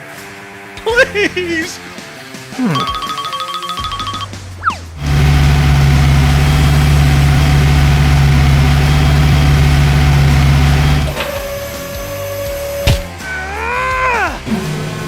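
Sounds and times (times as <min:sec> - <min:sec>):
vehicle engine idling: 0:05.0 - 0:11.3.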